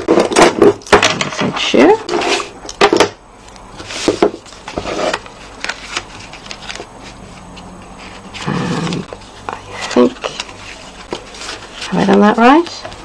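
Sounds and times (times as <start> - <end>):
paper rustle: 3.8 - 13.0.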